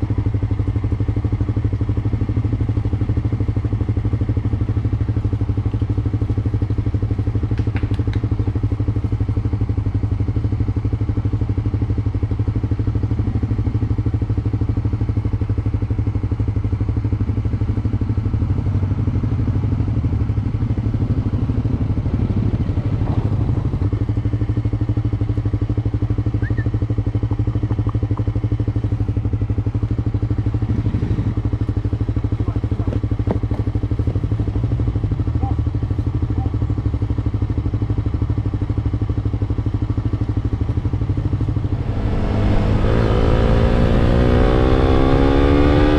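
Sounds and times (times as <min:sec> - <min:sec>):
motorcycle engine running steadily: 0:00.0 - 0:45.9.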